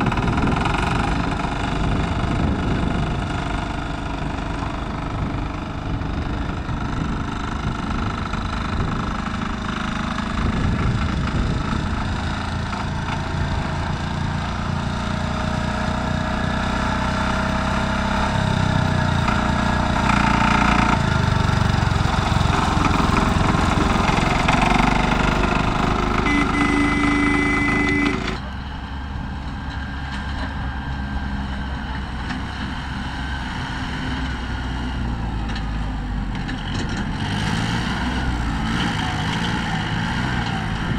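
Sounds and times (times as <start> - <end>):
tractor engines running: 0.0 - 40.9
steady tone: 19.2 - 29.6.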